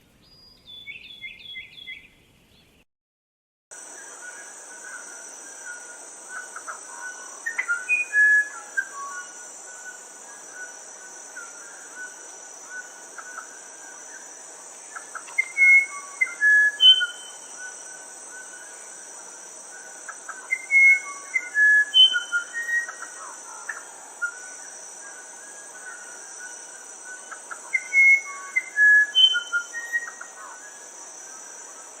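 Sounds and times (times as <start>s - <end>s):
wren singing flute-like notes: 0.2s - 2.7s, 3.8s - 32.0s
high insect drone: 3.7s - 32.0s.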